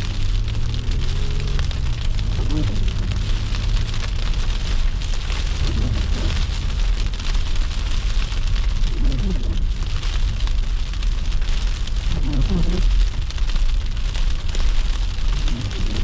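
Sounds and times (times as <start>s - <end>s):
car engine and road rumble: 0.0s - 16.0s
tyres hissing on wet road: 0.0s - 16.0s.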